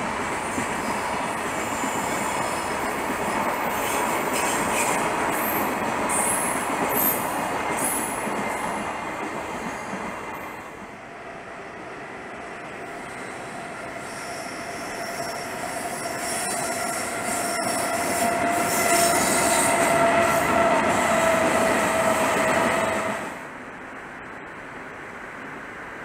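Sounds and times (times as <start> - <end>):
train wheels rumbling on rails: 0.0 - 26.0
high-pitched wheel squeal: 14.0 - 23.0.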